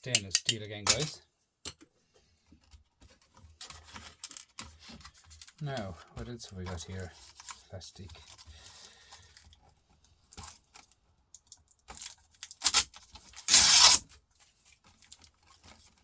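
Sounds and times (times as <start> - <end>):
loud tearing rip: 12.6 - 14.1.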